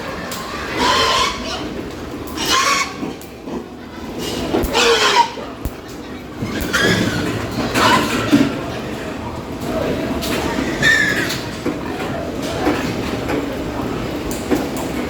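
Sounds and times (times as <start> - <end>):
pigs squealing: 0.0 - 3.2, 4.3 - 5.6, 10.6 - 11.4.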